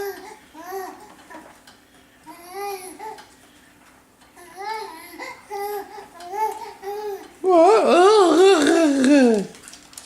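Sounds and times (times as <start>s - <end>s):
baby babbling and cooing: 0.0s - 1.5s, 2.3s - 3.2s, 4.4s - 9.5s.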